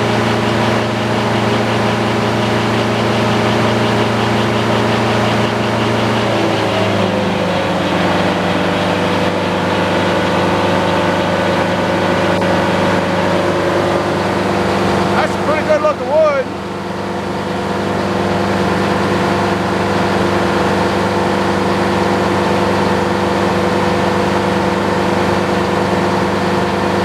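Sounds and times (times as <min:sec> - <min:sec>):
sawmill engine running: 0:00.0 - 0:27.0.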